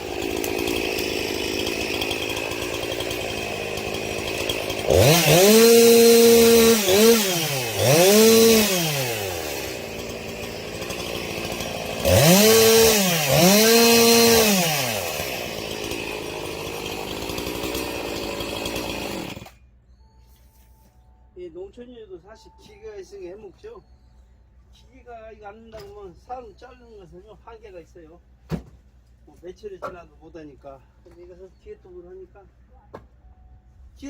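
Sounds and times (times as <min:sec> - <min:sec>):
chainsaw idling and revving: 0:00.0 - 0:19.6.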